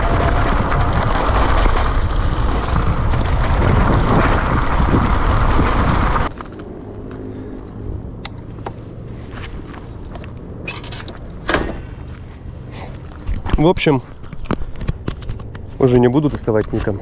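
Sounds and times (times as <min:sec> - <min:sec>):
wind rushing over microphone: 0:00.0 - 0:17.0
low steady hum: 0:06.0 - 0:13.4.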